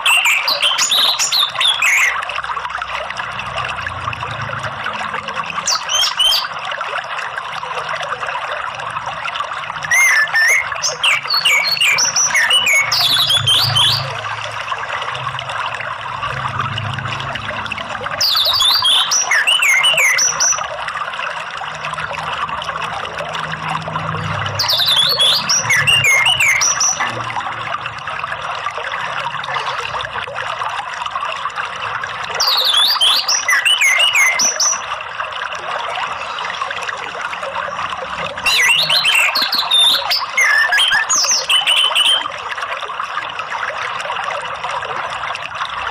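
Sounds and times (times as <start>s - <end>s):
thrush singing whistled notes: 0.0s - 2.2s, 5.6s - 6.6s, 9.8s - 14.3s, 18.2s - 20.7s, 24.5s - 27.2s, 32.3s - 34.9s, 38.4s - 42.3s
trickle of running water: 0.0s - 45.9s.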